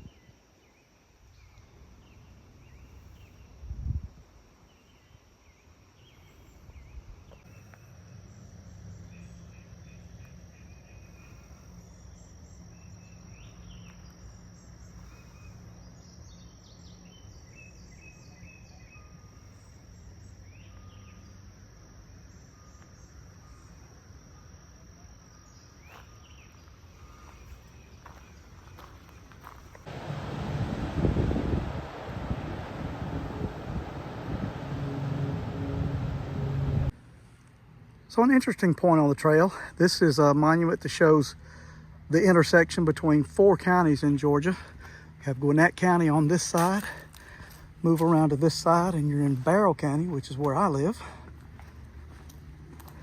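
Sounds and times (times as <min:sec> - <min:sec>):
insects droning: 0:00.0 - 0:37.0
low steady hum: 0:29.9 - 0:37.0.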